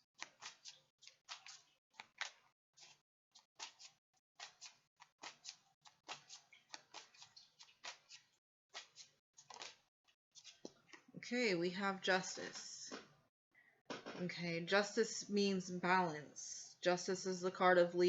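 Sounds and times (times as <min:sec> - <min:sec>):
cards being shuffled: 0:00.2 - 0:03.0, 0:03.6 - 0:09.8.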